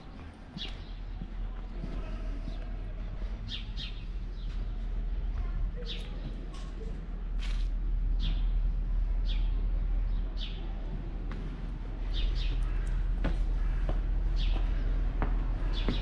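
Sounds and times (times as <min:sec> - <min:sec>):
steady low rumble: 0:00.0 - 0:16.0
footsteps on stone: 0:12.2 - 0:16.0.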